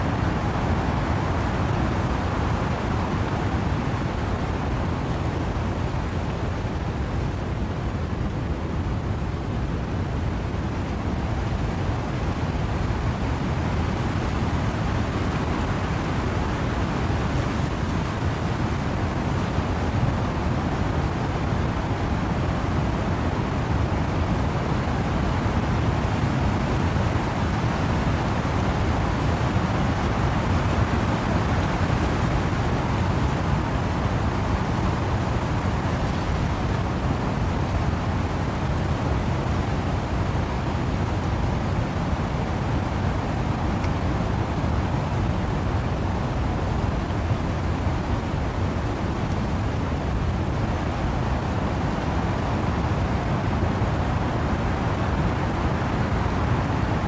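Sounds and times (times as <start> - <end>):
wind and rain through trees: 0.0 - 57.0.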